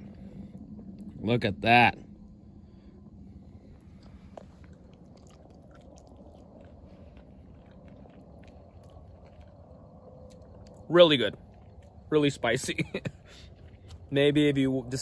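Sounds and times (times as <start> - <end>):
soft mouth clicks and smacks: 3.8 - 9.6, 10.2 - 10.8.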